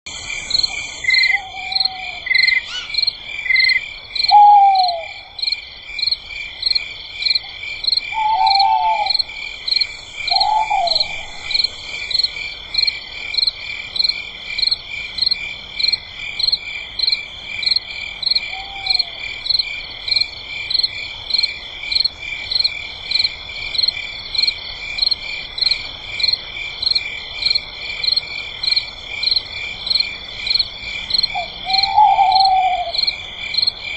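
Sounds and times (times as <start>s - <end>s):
steady high insect trilling: 0.1s - 33.9s
repeating frog call: 0.5s - 5.5s, 8.1s - 12.3s.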